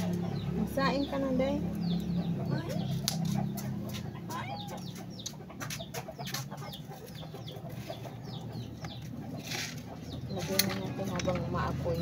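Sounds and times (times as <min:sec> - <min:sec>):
birds chirping: 0:00.0 - 0:12.0
charcoal fire crackling: 0:02.9 - 0:03.5.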